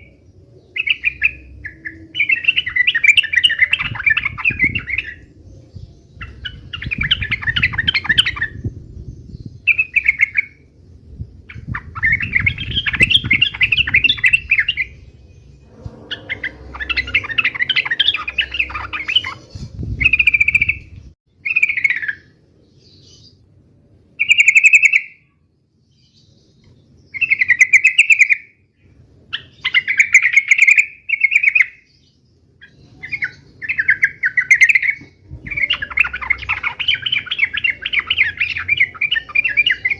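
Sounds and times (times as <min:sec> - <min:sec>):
bulbul singing chattering phrases: 0:11.4 - 0:22.1, 0:32.7 - 0:39.9.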